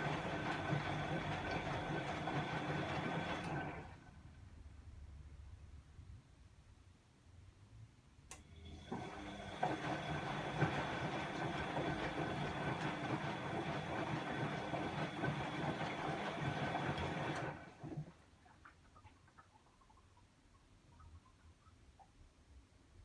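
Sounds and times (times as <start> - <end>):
washing machine drum motor whine: 0.0 - 4.0, 8.4 - 18.1.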